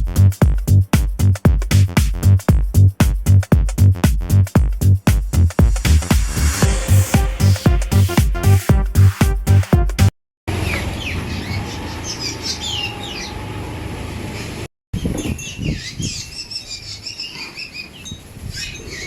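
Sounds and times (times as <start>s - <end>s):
electronic dance music: 0.0s - 10.1s
birds chirping: 10.5s - 13.7s, 14.4s - 19.0s.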